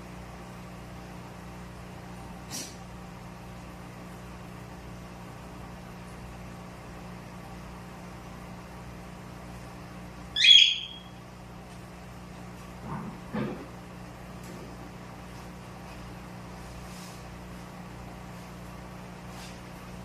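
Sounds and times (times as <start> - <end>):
shrill bird call: 10.4 - 11.2.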